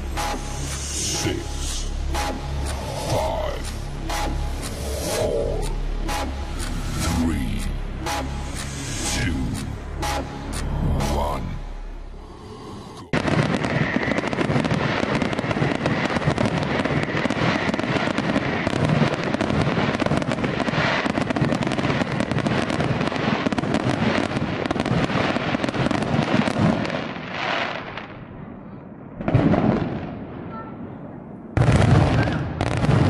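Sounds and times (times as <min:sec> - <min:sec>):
fireworks bangs and crackle: 0:13.1 - 0:33.0.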